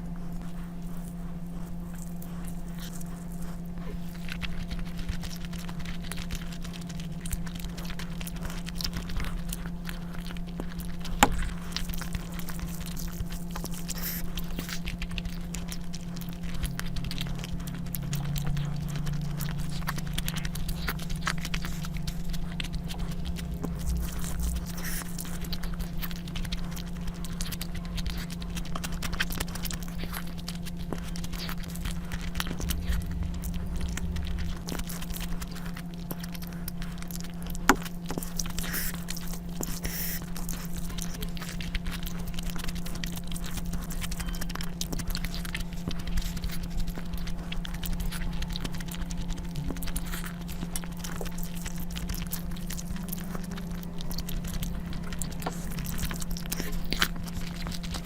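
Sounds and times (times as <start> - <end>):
low hum: 0.0 - 58.0
person chewing food: 0.0 - 58.0.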